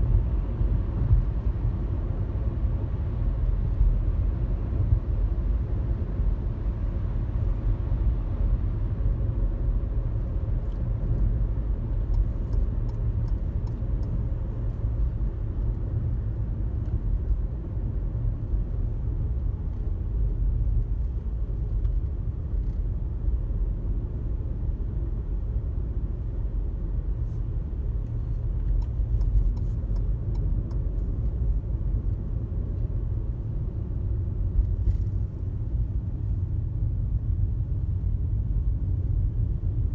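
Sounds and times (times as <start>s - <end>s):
car road and engine rumble: 0.0s - 39.9s
faint light ticks: 12.0s - 15.8s, 28.0s - 32.2s.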